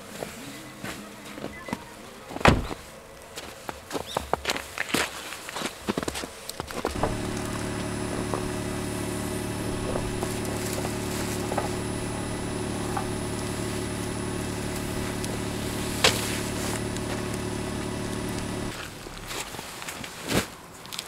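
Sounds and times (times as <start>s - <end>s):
engine knocks: 6.8s - 19.5s
car engine idling: 6.8s - 19.6s.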